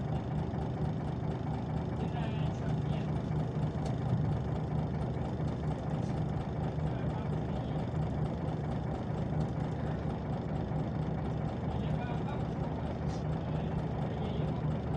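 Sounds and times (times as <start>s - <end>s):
bus diesel engine humming: 0.0s - 14.9s.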